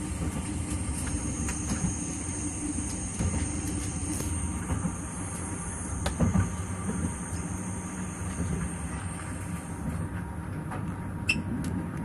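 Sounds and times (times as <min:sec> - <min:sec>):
train wheels rumbling on rails: 0:00.0 - 0:11.2
train knocks: 0:06.0 - 0:07.3.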